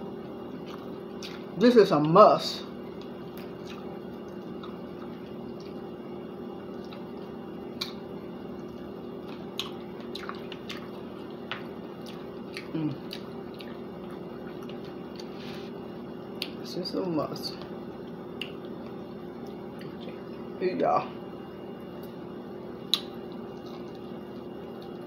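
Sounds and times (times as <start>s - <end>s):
chewing with wet smacks: 0.5s - 16.6s, 17.5s - 20.6s, 21.7s - 25.0s
person humming: 12.7s - 13.0s.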